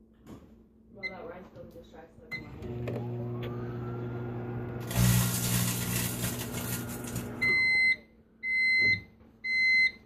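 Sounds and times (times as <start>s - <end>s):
microwave beep: 2.3s - 10.0s
microwave oven humming: 2.4s - 9.0s.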